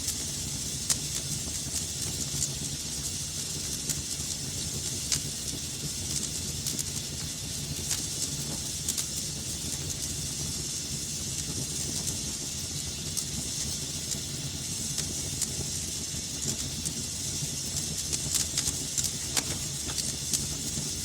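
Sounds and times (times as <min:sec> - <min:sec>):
fire crackling and popping: 0:00.0 - 0:21.0
fire hiss and low rumble: 0:00.0 - 0:21.0.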